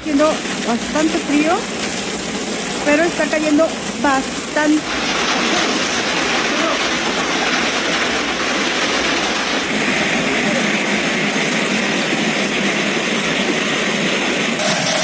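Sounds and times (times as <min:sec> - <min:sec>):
hail clattering: 0:00.0 - 0:15.0.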